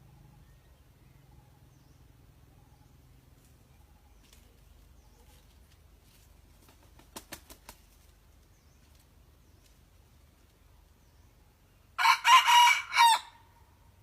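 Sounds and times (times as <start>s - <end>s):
rooster flapping wings: 6.5s - 8.2s.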